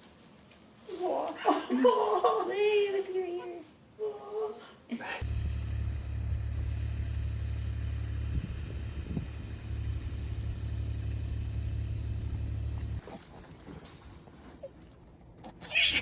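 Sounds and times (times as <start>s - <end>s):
low rumble: 5.2s - 13.0s.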